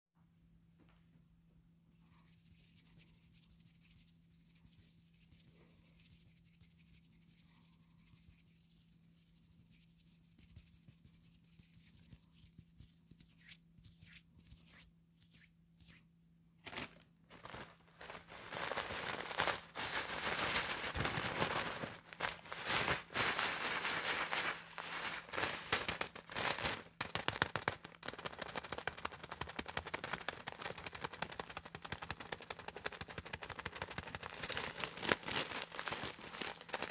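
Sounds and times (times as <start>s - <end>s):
comb scraping paper: 16.6s - 36.9s.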